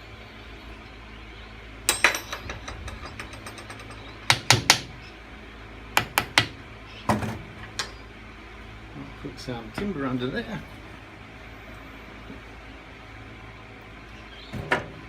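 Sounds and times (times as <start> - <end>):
metal parts clanking and rattling: 1.9 - 4.6
sharp metal knocks: 1.9 - 4.9.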